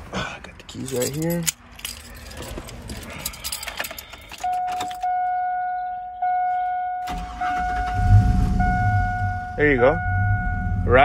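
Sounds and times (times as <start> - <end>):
keys jingling in ignition: 0.5 - 5.2
dashboard warning chime dinging: 3.8 - 10.9
engine starter cranking: 7.0 - 8.2.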